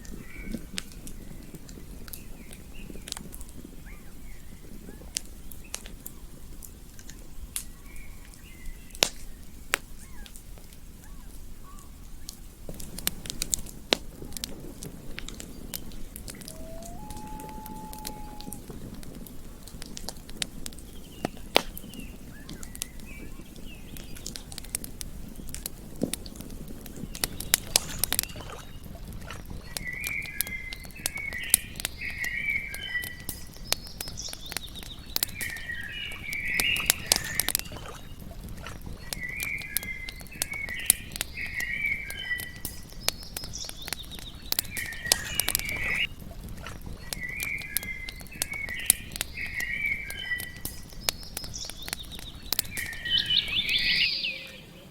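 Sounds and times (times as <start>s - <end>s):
campfire crackling and popping: 0.0s - 54.9s
bird chirping: 15.4s - 18.9s, 39.0s - 46.1s, 47.0s - 54.9s.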